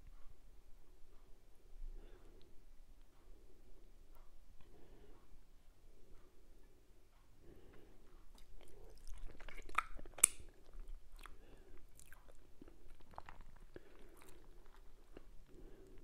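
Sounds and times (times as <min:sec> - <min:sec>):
wet chewing and mouth clicks: 0:08.2 - 0:16.0.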